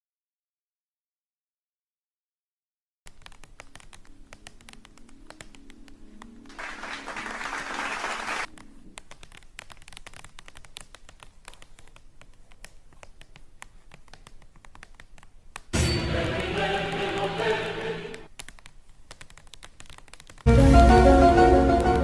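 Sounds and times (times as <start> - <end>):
dense tapping and scratching clicks: 3.1 - 6.5, 8.5 - 15.7, 18.2 - 20.5.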